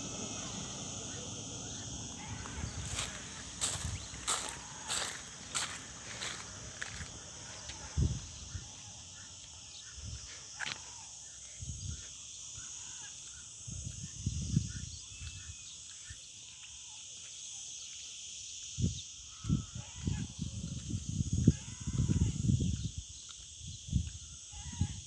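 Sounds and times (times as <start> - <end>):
steady high hiss: 0.0 - 9.1
birds calling: 0.0 - 12.0.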